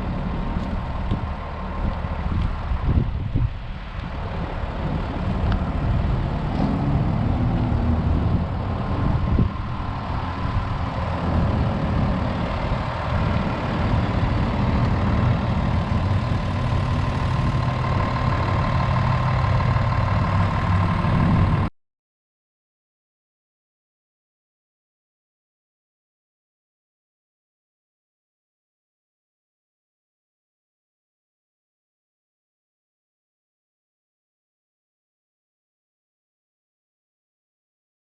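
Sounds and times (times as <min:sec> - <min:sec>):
diesel truck engine running: 0:00.0 - 0:21.7.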